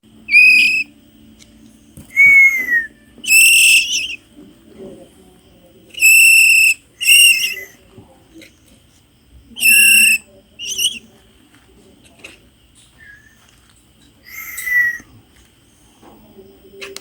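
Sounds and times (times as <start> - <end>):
songbird chick calling: 0.3 - 0.9, 2.2 - 4.2, 6.0 - 7.7, 9.6 - 11.0.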